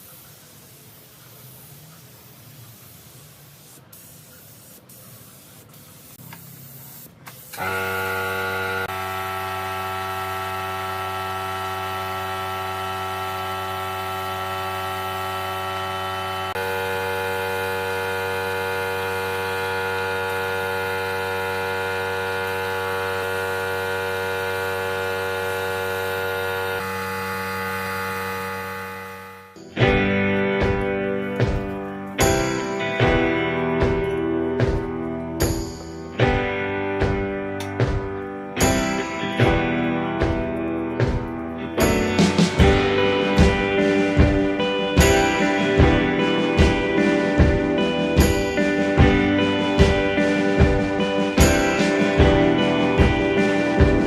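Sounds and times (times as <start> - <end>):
electric motor humming: 7.5 - 29.6.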